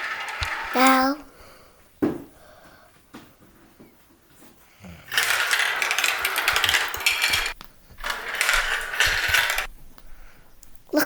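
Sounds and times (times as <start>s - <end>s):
marbles rattling down a track: 0.0s - 1.3s, 5.1s - 9.7s.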